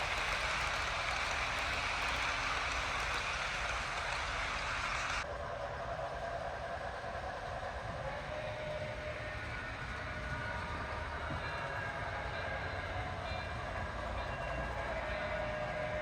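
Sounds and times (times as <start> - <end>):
model steam locomotive sounds: 0.0 - 16.0.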